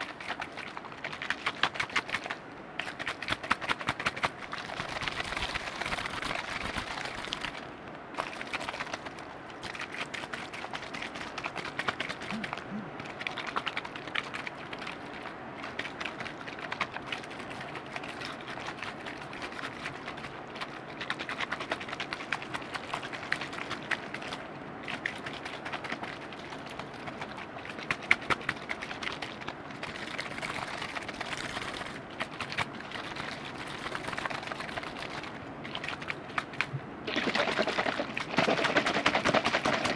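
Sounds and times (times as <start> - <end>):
small wet liquid clicks: 0.0 - 39.9
liquid crackling with tiny pops: 36.0 - 39.9.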